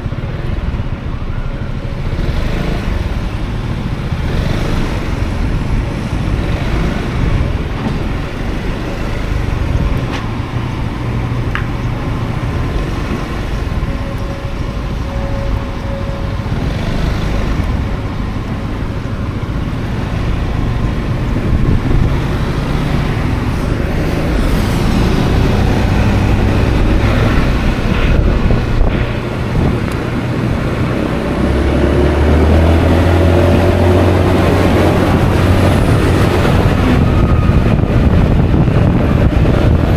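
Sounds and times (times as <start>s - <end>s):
passing vehicles: 0.0s - 39.9s
scooter engine: 0.0s - 39.9s
wind buffeting microphone: 0.0s - 39.9s.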